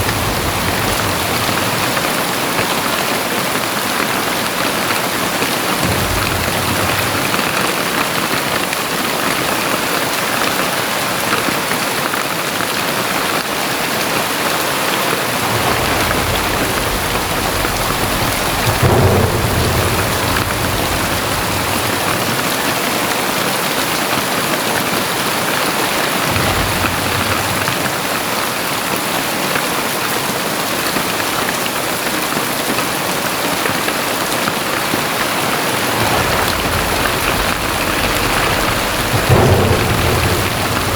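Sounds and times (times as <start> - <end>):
thunder rumbling: 0.0 - 9.6, 15.0 - 29.4, 34.1 - 40.9
heavy rain pouring: 0.0 - 40.9.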